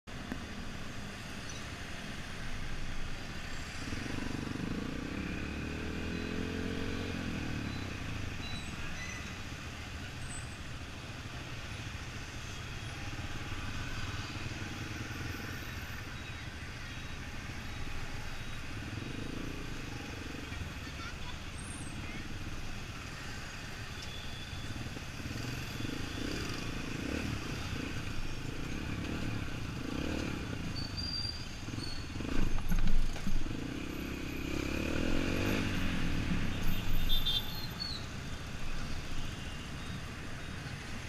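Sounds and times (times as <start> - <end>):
wind and road noise: 0.1 - 41.0
motorcycle engine accelerating: 31.7 - 36.5.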